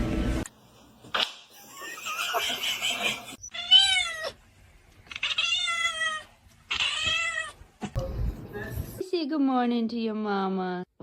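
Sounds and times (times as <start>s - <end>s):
cat meowing: 5.1s - 7.6s.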